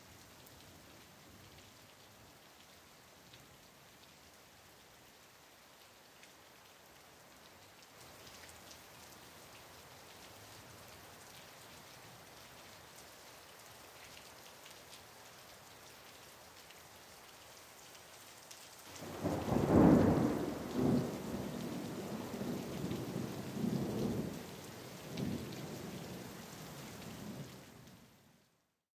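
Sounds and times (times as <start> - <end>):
steady rain: 0.0 - 28.8
rolling thunderclap: 19.0 - 24.4.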